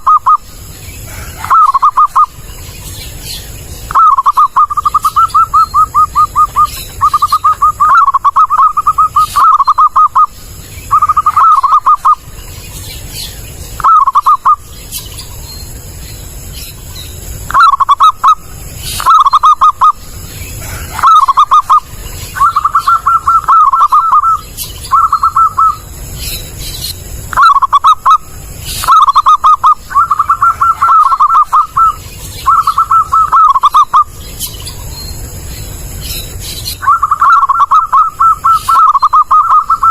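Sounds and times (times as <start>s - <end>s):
dove cooing: 0.0s - 12.4s, 13.8s - 14.7s, 17.4s - 25.9s, 27.3s - 34.2s, 36.7s - 39.9s.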